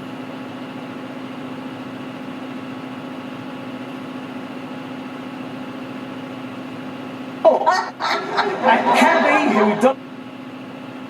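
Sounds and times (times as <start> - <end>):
diesel engine droning: 7.4 - 10.2.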